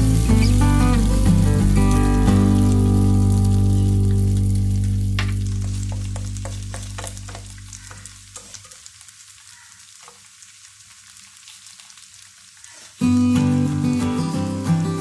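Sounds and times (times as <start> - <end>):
background music: 0.0 - 7.2
pancake sizzling in a pan: 0.0 - 13.2.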